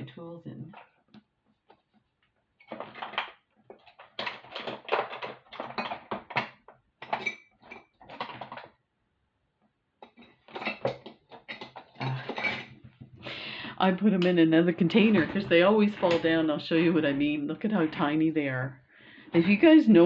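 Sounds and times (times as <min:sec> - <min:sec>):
hand tools clinking in a tray: 0:10.0 - 0:12.8.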